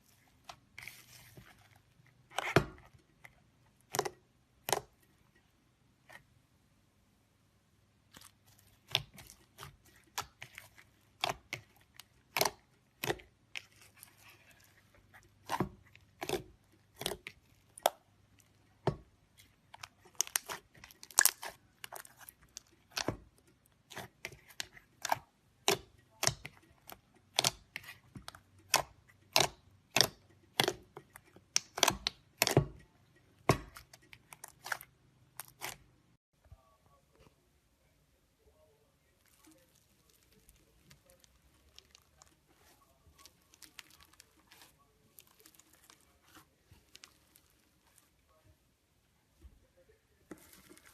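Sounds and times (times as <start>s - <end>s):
slime clicking and popping: 8.1s - 13.8s, 19.8s - 23.3s, 23.9s - 32.8s.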